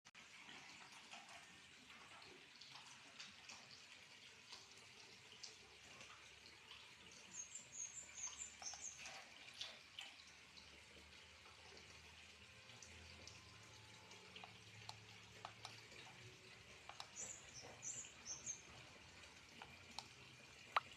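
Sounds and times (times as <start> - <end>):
water trickling and dripping: 0.1 - 20.9
small bird chirping: 7.3 - 9.3, 16.7 - 19.0, 20.7 - 20.9
small splashy clicks: 7.3 - 10.3, 13.1 - 20.9.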